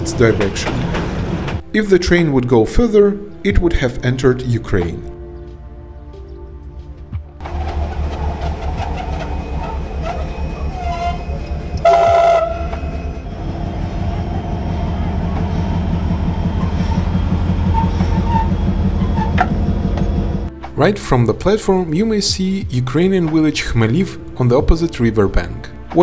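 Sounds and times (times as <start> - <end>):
train rumbling on track: 0.0 - 1.8, 6.9 - 20.9
thin wheel squeals: 7.9 - 13.3, 16.5 - 19.6
shrill train whistle blast: 9.6 - 12.9.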